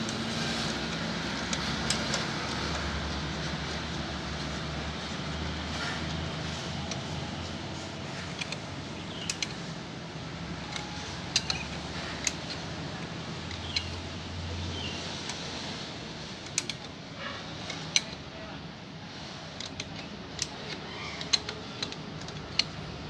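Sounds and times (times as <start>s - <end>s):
metallic tool clicks and taps: 8.3s - 9.6s, 10.6s - 12.7s, 13.4s - 14.2s, 16.4s - 16.9s, 19.6s - 22.9s.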